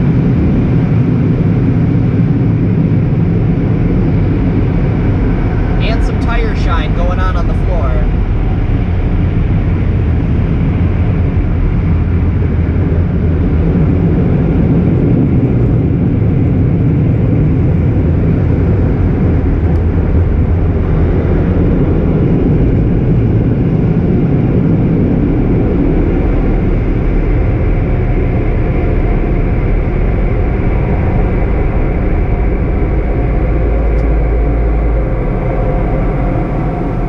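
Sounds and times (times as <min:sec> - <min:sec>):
dryer blowers rushing air: 0:00.0 - 0:37.0.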